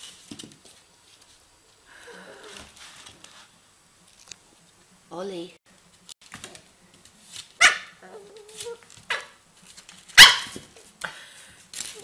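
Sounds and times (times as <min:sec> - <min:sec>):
puppy barking: 0:07.6 - 0:09.4, 0:10.2 - 0:10.6.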